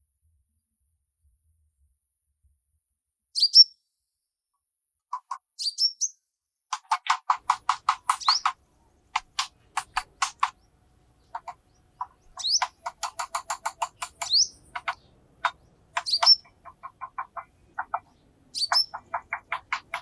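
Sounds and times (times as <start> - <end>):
birds clicking calls: 6.7 - 20.0
bird chirps rising: 11.3 - 13.2, 13.9 - 20.0.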